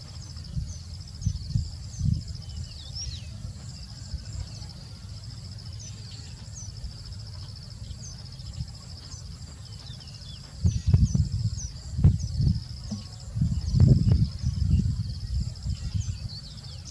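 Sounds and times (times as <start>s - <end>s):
high pulsing insect trill: 0.0s - 16.9s
loud low thuds: 10.6s - 15.0s.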